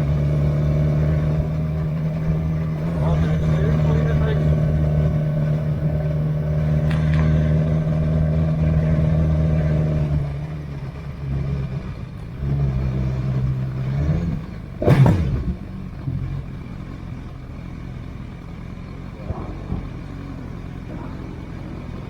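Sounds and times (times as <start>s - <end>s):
vehicle passing close by: 0.0s - 10.3s, 12.5s - 15.7s
motorcycle engine running: 0.0s - 22.0s.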